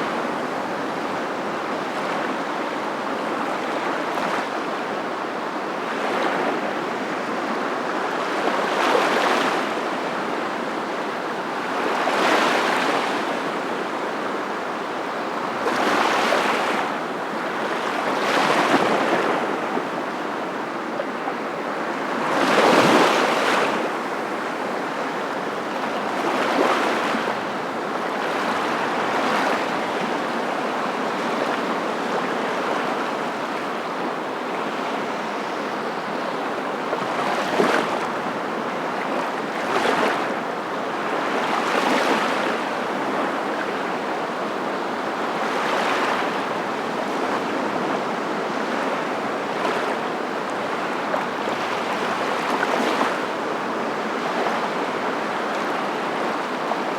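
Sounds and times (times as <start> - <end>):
ocean waves breaking: 15.4 - 56.9.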